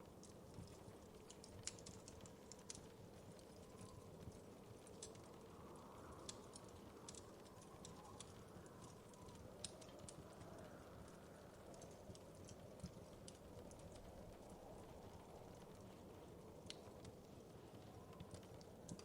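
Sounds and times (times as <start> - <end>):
low rustle of burning: 0.0 - 19.0
wood fire snaps and pops: 0.0 - 19.0.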